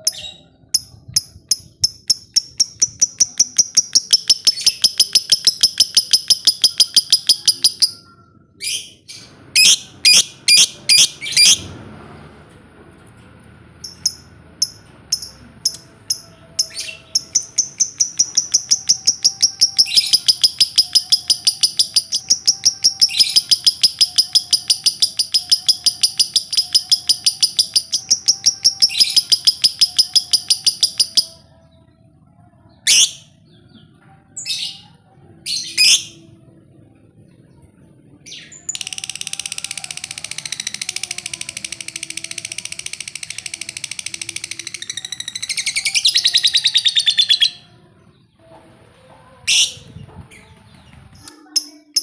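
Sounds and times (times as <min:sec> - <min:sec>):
bird chattering trill: 0:00.0 - 0:08.0, 0:13.8 - 0:31.4, 0:38.6 - 0:47.6
bird chirps: 0:00.0 - 0:11.6, 0:13.8 - 0:31.4.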